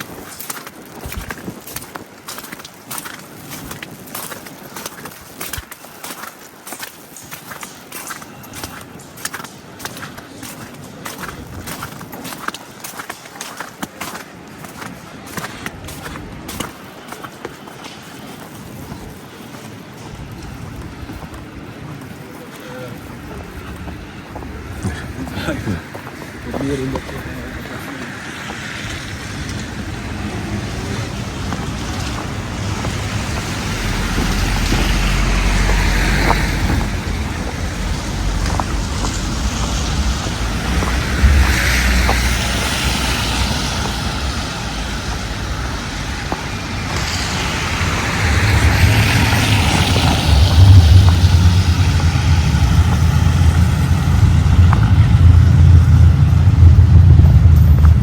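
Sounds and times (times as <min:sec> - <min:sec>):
wind buffeting microphone: 0:00.0 - 0:05.7, 0:18.6 - 0:58.0.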